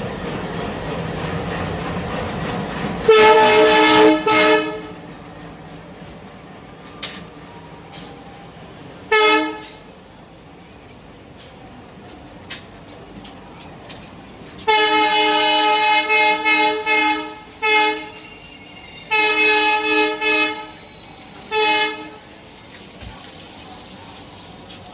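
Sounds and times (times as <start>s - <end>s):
train running on rails: 0.0s - 24.9s
locomotive horn blasts: 3.1s - 5.0s, 9.1s - 9.8s, 14.7s - 18.3s, 19.1s - 20.8s, 21.5s - 22.2s.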